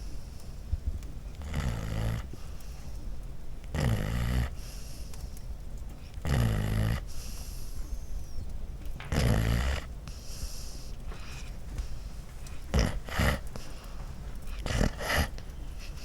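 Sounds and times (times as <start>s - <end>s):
dog snoring: 1.3s - 2.8s, 3.6s - 5.0s, 6.1s - 7.6s, 9.0s - 16.0s.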